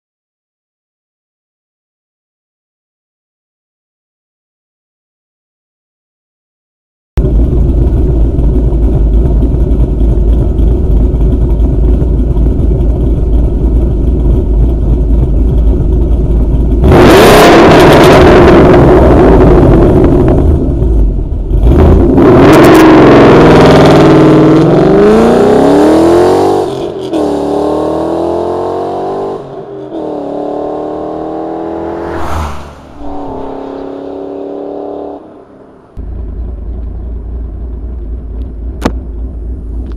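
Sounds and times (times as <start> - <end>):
car engine idling and revving: 7.2 - 39.9
car accelerating through gears: 21.6 - 35.6.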